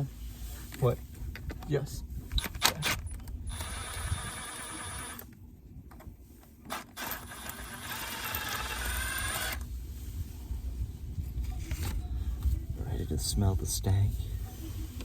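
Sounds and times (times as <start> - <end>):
small motorized tool running: 7.0 - 9.6.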